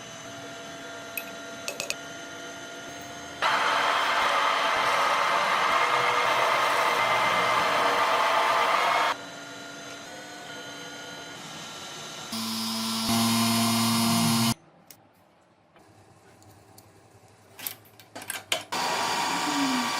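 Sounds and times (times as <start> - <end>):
power tools running: 0.7 - 14.6, 18.7 - 19.9.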